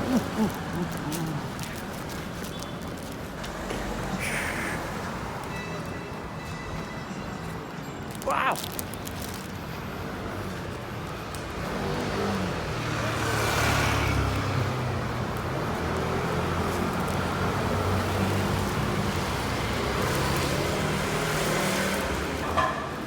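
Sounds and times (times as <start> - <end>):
vehicle engine humming: 0.0 - 6.0, 8.8 - 21.2
road noise of passing vehicle: 0.0 - 23.0.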